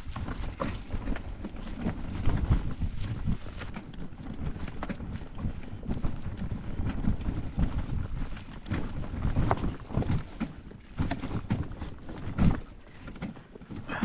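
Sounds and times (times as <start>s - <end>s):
mountain bike rolling over rocks: 0.0s - 14.0s
wind buffeting microphone: 0.0s - 14.0s.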